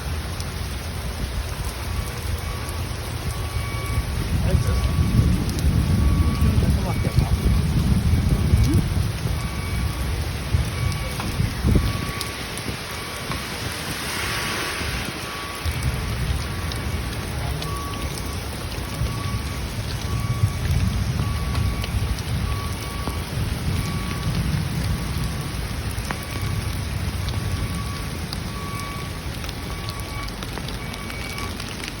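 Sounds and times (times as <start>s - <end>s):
heavy rain falling: 0.0s - 32.0s
low rolling thunder: 1.2s - 30.2s.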